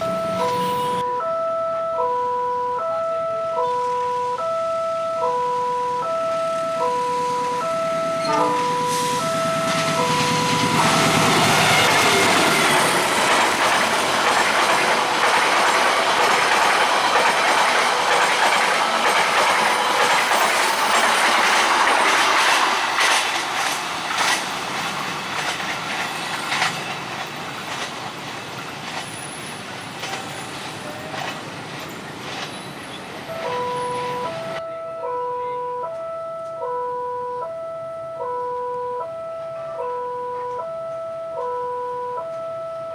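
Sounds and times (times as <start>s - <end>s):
crossing electronic warning tones: 0.0s - 26.7s, 32.9s - 42.9s
train wheels rushing on rails: 7.1s - 34.6s
wheels clicking over rail joints: 9.6s - 34.4s.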